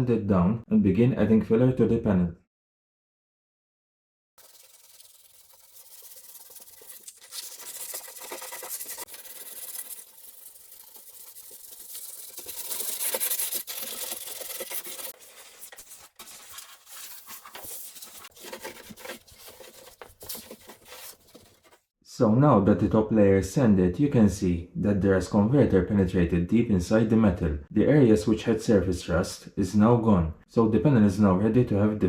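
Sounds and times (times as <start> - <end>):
sanding metal panel: 4.4 - 21.7.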